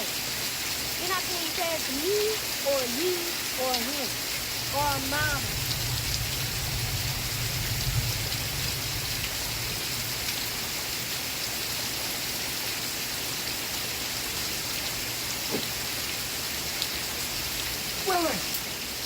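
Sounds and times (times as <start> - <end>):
steady rain falling: 0.0 - 19.0
low rumble: 4.6 - 10.2.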